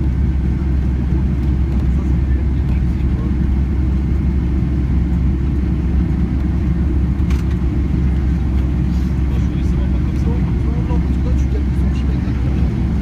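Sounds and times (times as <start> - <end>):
jet engine cabin rumble: 0.0 - 13.0.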